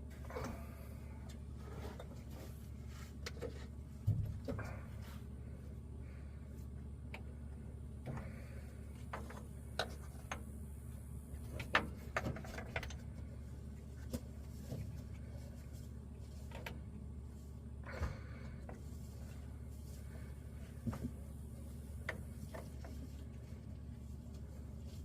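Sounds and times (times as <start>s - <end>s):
steady low hum: 0.0s - 25.0s
clicks and knocks of hose fittings: 11.4s - 13.3s.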